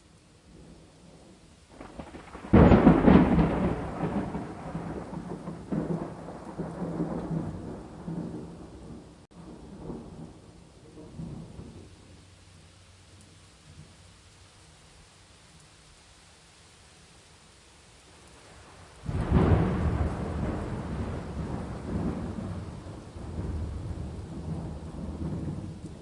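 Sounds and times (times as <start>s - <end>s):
faint rain hiss: 0.0s - 26.0s
thunder cracking and rumbling: 0.5s - 12.0s, 18.6s - 26.0s.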